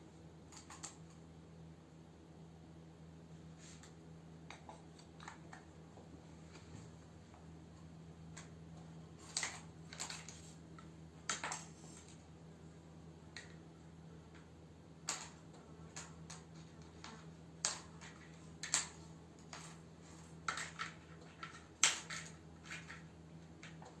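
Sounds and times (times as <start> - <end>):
steady low hum: 0.0 - 24.0
small objects clicking and tapping: 0.5 - 1.2, 9.2 - 12.2, 14.3 - 19.8, 20.4 - 24.0.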